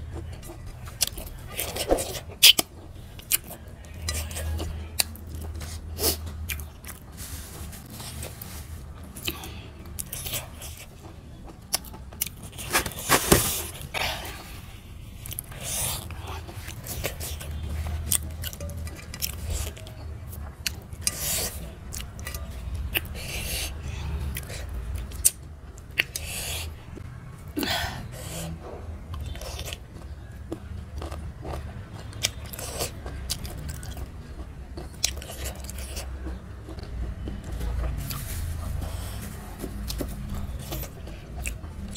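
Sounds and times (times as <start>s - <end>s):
wet chewing and biting: 0.1s - 7.1s, 9.0s - 14.6s, 15.2s - 27.1s, 28.2s - 41.9s
mouth clicks and smacks: 22.9s - 26.5s.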